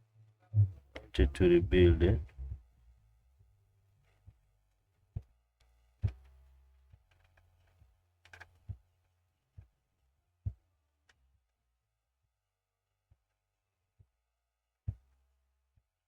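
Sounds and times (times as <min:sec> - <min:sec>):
faint low hum: 0:00.5 - 0:03.0.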